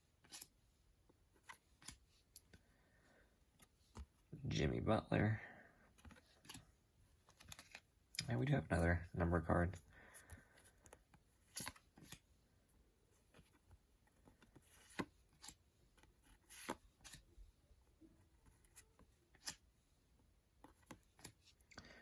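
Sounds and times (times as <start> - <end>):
trading cards tapping and rustling: 5.9 - 12.3, 13.2 - 17.4.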